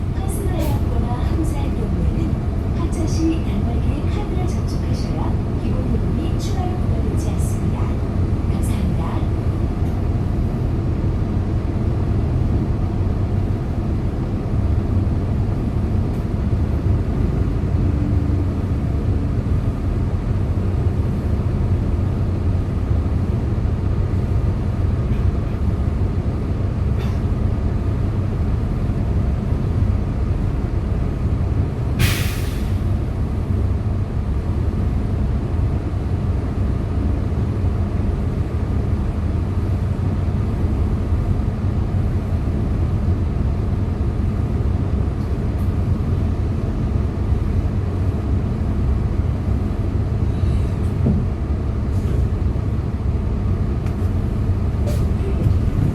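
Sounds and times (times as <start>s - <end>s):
bus engine drone: 0.0s - 55.9s
compressed air hiss: 32.0s - 32.8s.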